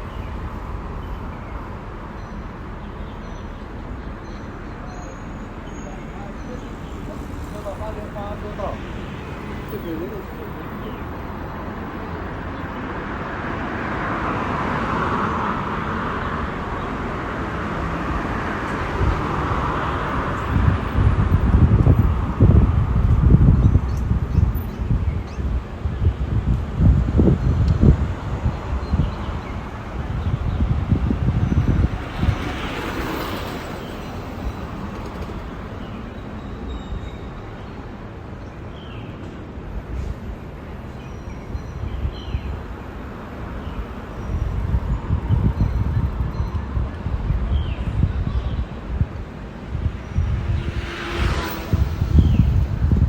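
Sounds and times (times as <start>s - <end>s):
road vehicle noise: 0.0s - 53.0s
wind buffeting microphone: 5.5s - 38.3s, 39.5s - 53.0s.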